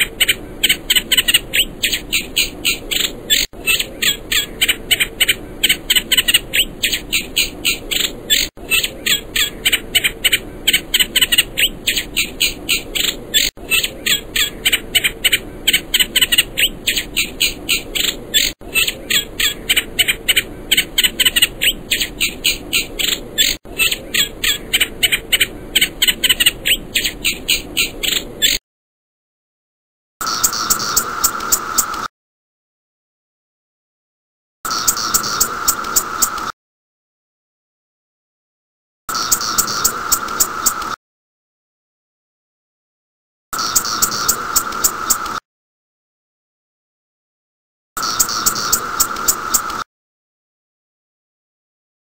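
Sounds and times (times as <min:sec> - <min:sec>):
small animal calling rapidly: 0:00.0 - 0:28.6.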